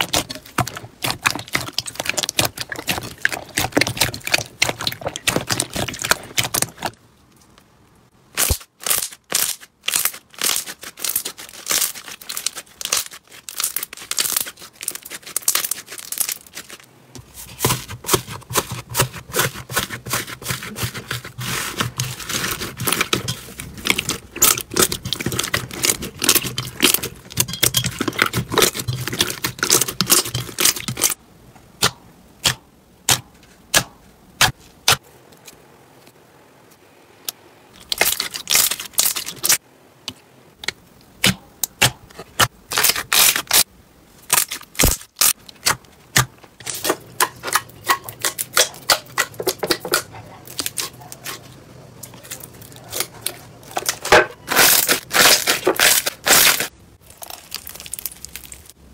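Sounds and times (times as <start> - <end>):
slime crackling and popping: 0.0 - 7.0, 8.4 - 16.8, 20.0 - 31.2, 53.8 - 58.8.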